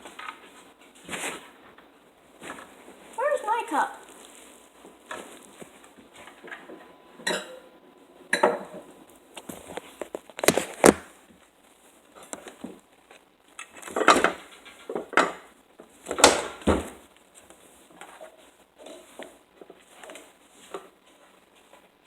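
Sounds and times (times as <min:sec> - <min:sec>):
dishes and cups clinking: 0:07.2 - 0:07.7, 0:08.3 - 0:08.9.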